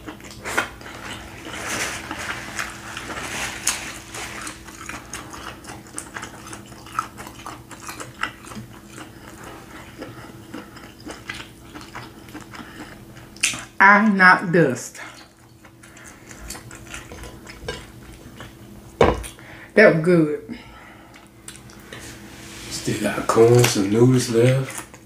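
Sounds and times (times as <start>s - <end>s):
chewing and mouth smacks: 0.0s - 1.6s, 4.3s - 13.8s, 15.1s - 19.4s, 21.1s - 21.8s.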